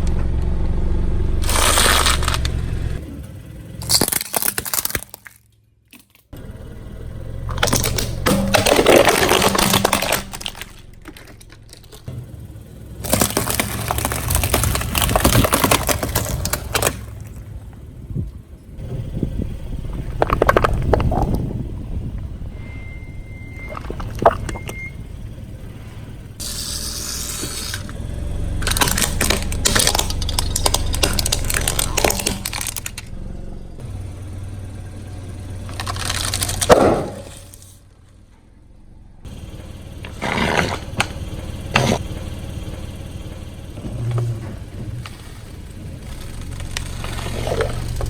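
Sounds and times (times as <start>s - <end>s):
car rumble: 0.0s - 48.0s
tyre crushing brittle objects: 1.4s - 6.4s, 7.4s - 18.0s, 26.4s - 33.1s, 35.1s - 37.8s, 40.0s - 42.1s, 43.8s - 48.0s.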